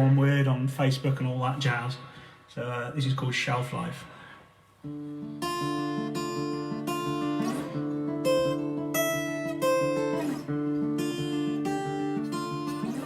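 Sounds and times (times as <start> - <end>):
acoustic guitar strumming chords: 4.8 - 13.0.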